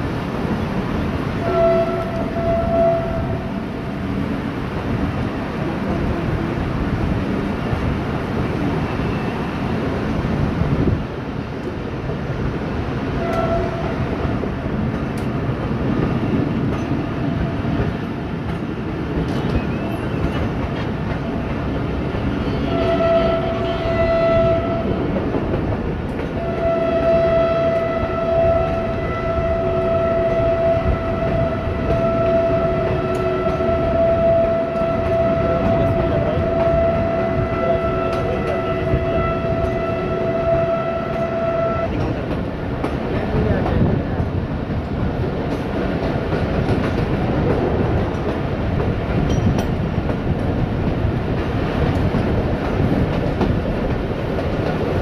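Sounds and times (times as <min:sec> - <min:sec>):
train wheels rumbling on rails: 0:00.0 - 0:55.0
locomotive horn: 0:01.4 - 0:03.5, 0:13.1 - 0:14.2, 0:22.5 - 0:25.1, 0:26.4 - 0:42.0.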